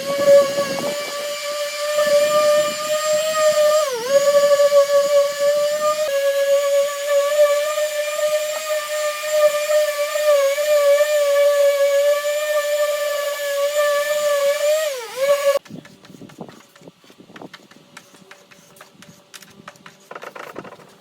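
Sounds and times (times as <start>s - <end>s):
electric power tool whining: 0.0s - 15.6s.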